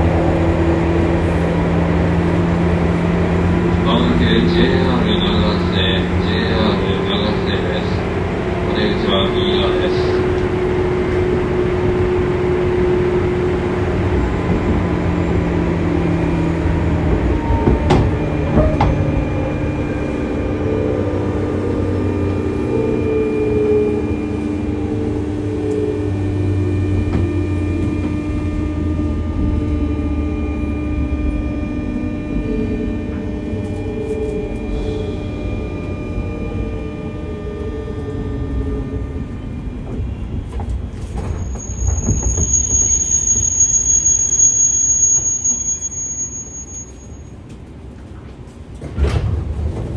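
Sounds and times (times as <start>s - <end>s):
electric train motor whine: 0.0s - 49.9s.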